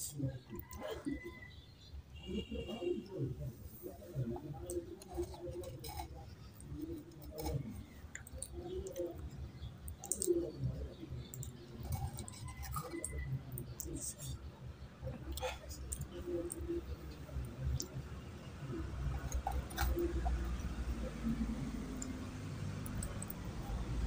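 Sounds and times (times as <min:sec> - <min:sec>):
spoon scraping clay pot: 0:03.6 - 0:09.2, 0:11.2 - 0:14.0, 0:18.8 - 0:21.2
wet chewing and mouth clicks: 0:04.2 - 0:14.4, 0:15.1 - 0:24.0.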